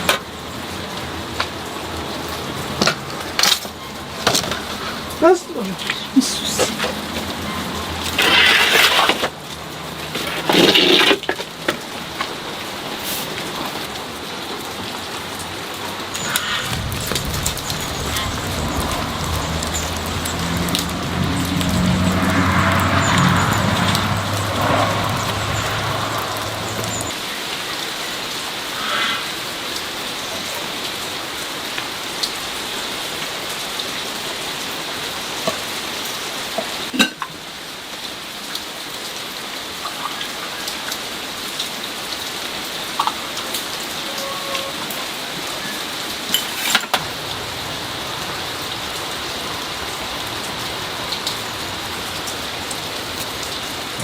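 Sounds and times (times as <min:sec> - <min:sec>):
steady rain: 0:00.0 - 0:54.0
sharp ticks and drips: 0:13.3 - 0:44.8, 0:46.0 - 0:54.0
low hum: 0:16.2 - 0:27.2.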